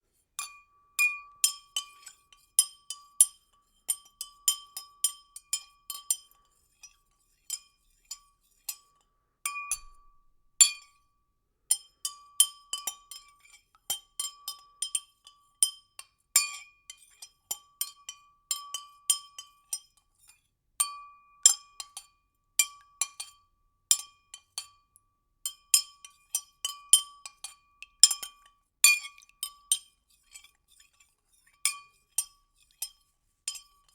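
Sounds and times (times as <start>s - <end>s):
spoon clinking in a glass: 25.5s - 31.0s, 31.7s - 33.9s.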